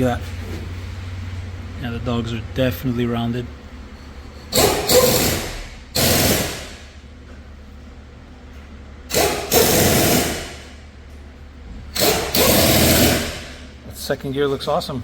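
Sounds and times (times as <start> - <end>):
air tool bursts: 4.5 - 7.0, 9.1 - 10.8, 11.9 - 13.6.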